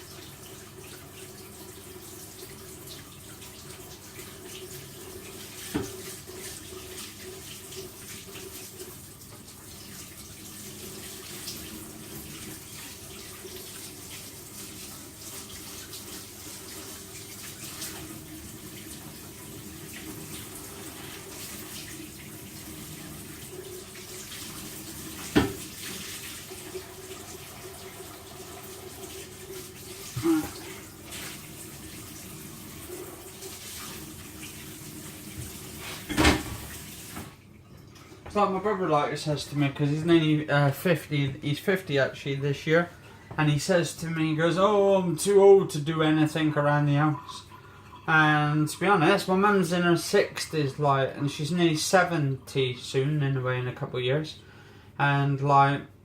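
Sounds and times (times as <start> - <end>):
tap water running into sink: 0.0 - 40.0.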